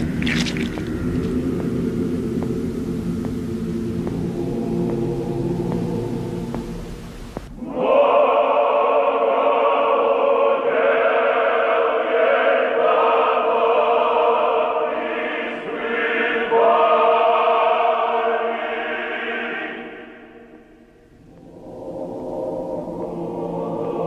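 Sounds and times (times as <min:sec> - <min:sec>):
choir singing sustained chords: 0:00.0 - 0:24.0.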